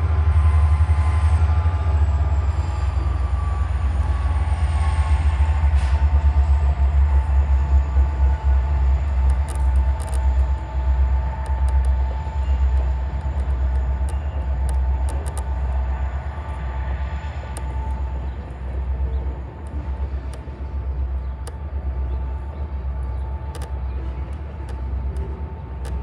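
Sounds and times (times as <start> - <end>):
freight train rumbling on track: 0.0 - 26.0
sharp metallic clicks: 8.3 - 26.0.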